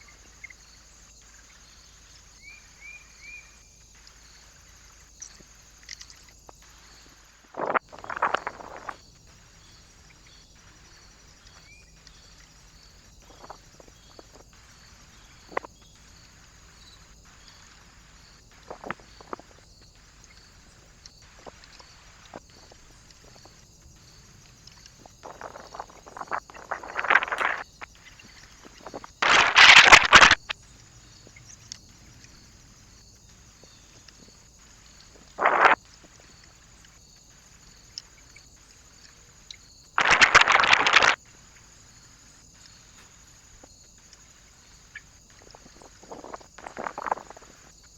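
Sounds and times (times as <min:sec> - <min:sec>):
birds tapping and scrabbling: 0:03.9 - 0:47.9
camera hiss: 0:24.6 - 0:30.6, 0:34.0 - 0:35.8, 0:40.0 - 0:41.7
loud rustling burst: 0:29.2 - 0:30.5, 0:40.0 - 0:41.2.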